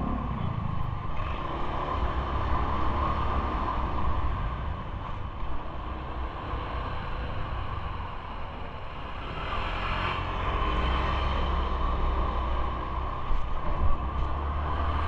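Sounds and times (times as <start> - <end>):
wind rushing over microphone: 0.0 - 8.9
vehicle and road rumble: 0.0 - 15.0.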